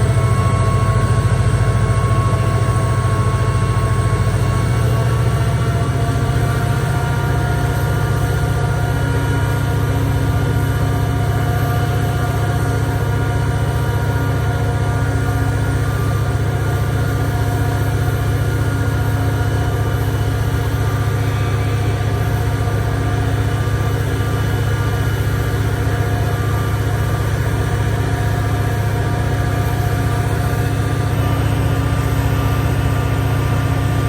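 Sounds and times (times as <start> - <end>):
diesel locomotive engine rumbling: 0.0 - 34.0.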